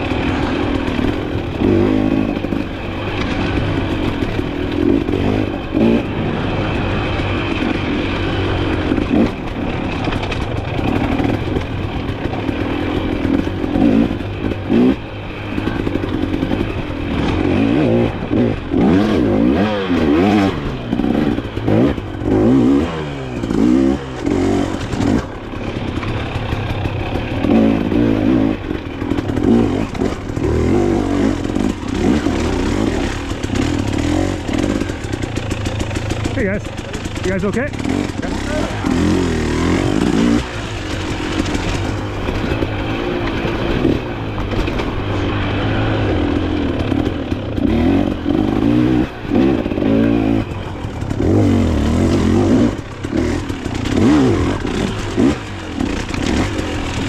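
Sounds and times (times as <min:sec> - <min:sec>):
dirt bike engine revving: 0:00.0 - 0:57.0
bike knocks and rattles: 0:23.4 - 0:57.0.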